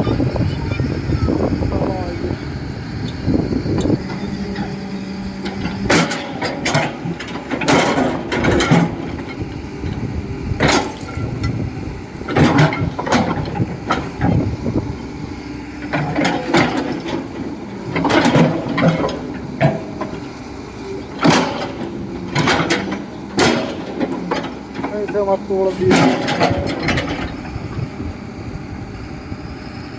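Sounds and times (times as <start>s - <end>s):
excavator engine running: 0.0s - 29.9s
clanking and scraping: 3.1s - 9.4s, 15.8s - 20.3s, 21.2s - 27.5s.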